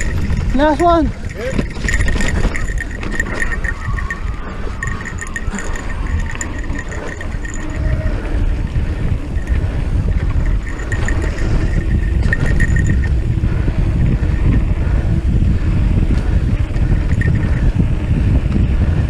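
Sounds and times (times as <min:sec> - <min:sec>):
high-pitched squeaks: 0:00.0 - 0:13.3
bike tyres rumbling on dirt: 0:00.0 - 0:19.0
wind buffeting microphone: 0:00.0 - 0:19.0.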